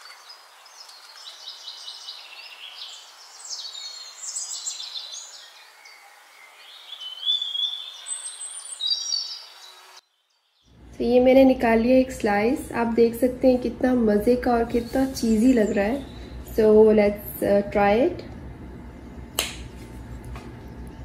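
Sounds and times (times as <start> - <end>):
birds chirping and singing: 0.0 - 10.8, 14.6 - 16.5.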